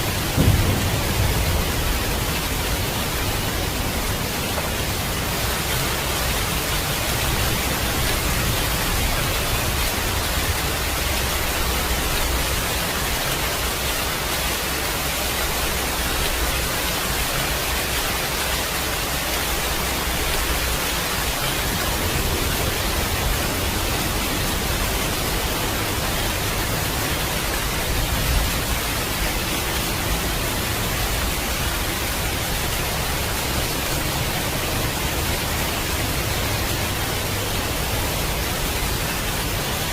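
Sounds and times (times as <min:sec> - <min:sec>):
heavy rain hiss: 0:00.0 - 0:39.9
low thunder rumbling: 0:00.1 - 0:12.7.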